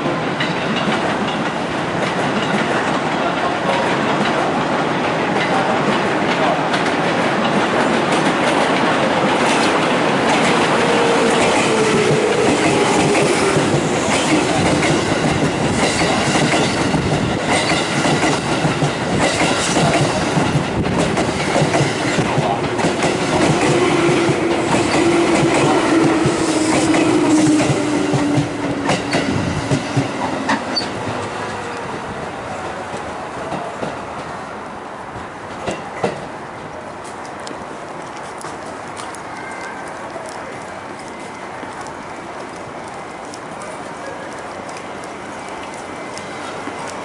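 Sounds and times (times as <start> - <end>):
train wheels clicking over rail joints: 0.0 - 31.9
train rumble: 0.0 - 47.0.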